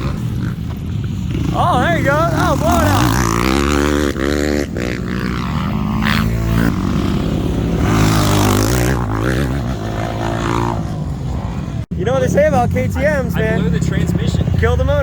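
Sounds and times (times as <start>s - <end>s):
dirt bike engine revving: 0.0s - 11.8s
person talking: 1.5s - 3.2s.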